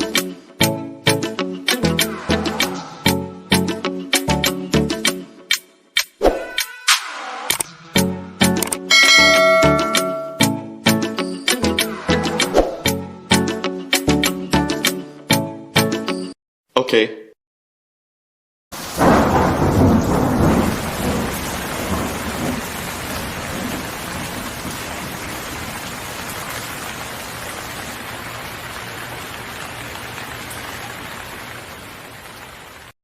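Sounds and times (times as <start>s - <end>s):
thunderclap rumbling: 18.8s - 27.0s
steady hiss of rain: 18.8s - 33.0s.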